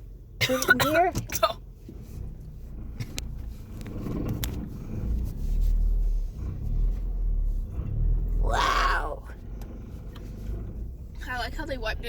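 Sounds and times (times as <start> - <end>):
car engine rumble from inside: 0.0 - 12.0.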